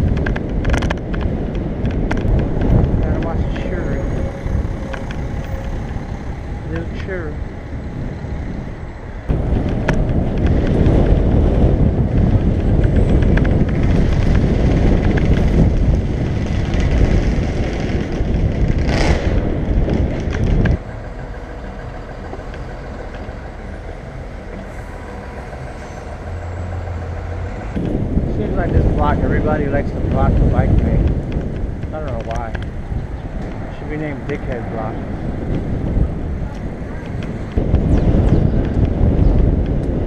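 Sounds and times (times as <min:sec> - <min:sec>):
low rumble of street traffic: 0:00.0 - 0:40.0.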